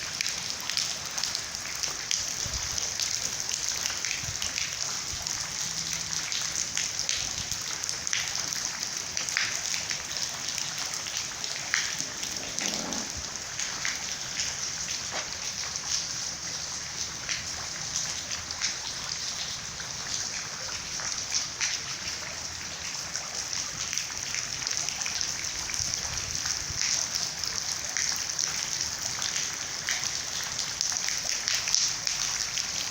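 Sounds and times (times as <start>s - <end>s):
steady rain hiss: 0.0s - 32.9s
raindrops clicking: 10.4s - 15.8s.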